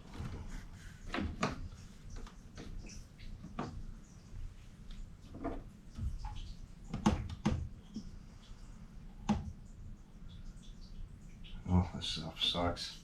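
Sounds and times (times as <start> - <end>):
sharp clicks and knocks: 5.3 - 8.1.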